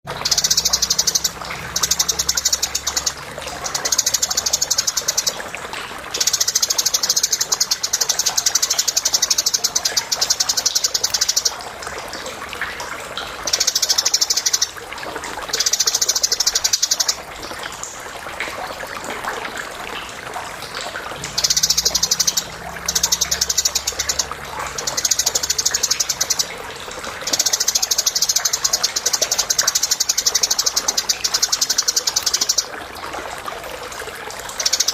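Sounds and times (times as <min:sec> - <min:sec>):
sparrows chirping and chattering: 0:00.2 - 0:05.4, 0:06.2 - 0:11.5, 0:21.3 - 0:26.5, 0:27.2 - 0:32.6.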